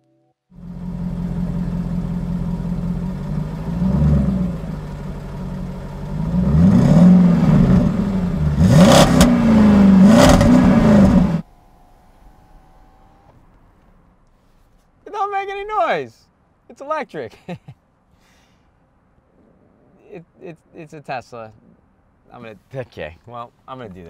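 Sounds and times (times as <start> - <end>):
car engine idling and revving: 0.5 - 15.0.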